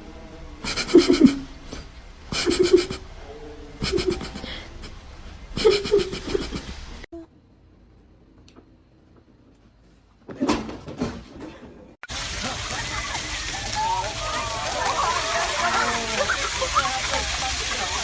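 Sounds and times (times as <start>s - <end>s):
person laughing: 0.6s - 1.8s, 2.4s - 3.0s, 3.8s - 5.0s, 5.6s - 7.0s, 15.4s - 17.4s.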